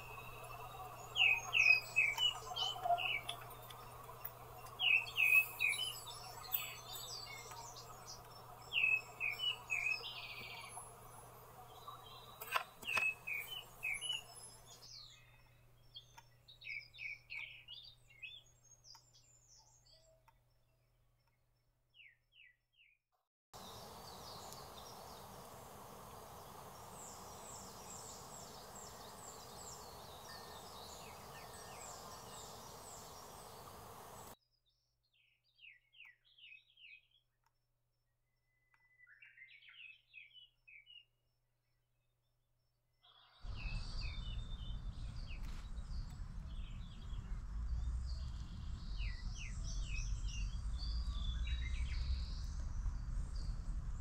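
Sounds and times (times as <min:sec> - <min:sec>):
songbirds chirping and trilling: 0:00.0 - 0:23.0, 0:23.6 - 0:37.5, 0:38.3 - 0:41.2, 0:43.0 - 0:54.0
steady hiss: 0:23.6 - 0:34.4.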